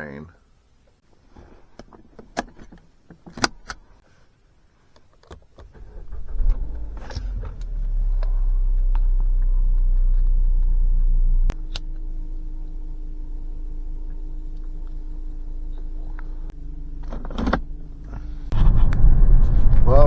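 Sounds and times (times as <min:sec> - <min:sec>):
car engine starting and idling: 0:05.6 - 0:19.2.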